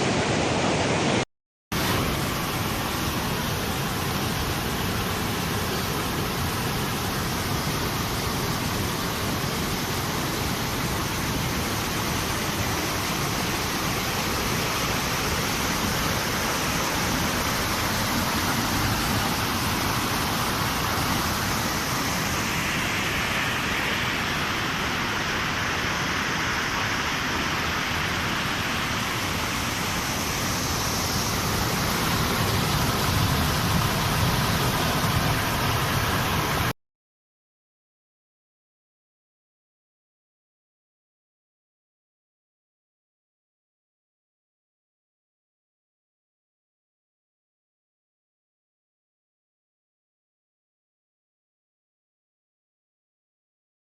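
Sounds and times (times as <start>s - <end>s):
water rushing: 0.0s - 36.7s.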